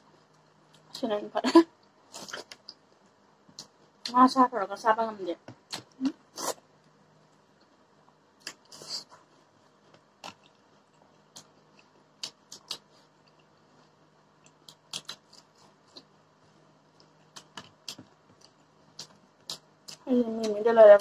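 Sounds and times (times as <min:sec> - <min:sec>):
mouth clicks and smacks: 0:05.6 - 0:06.6, 0:08.4 - 0:09.1, 0:10.0 - 0:13.6, 0:14.4 - 0:16.1, 0:17.0 - 0:20.6
quiet chewing: 0:05.7 - 0:20.6.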